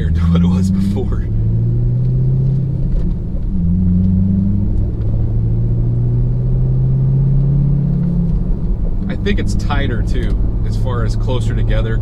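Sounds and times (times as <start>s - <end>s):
car engine running: 0.0s - 12.0s
low road rumble: 0.0s - 12.0s.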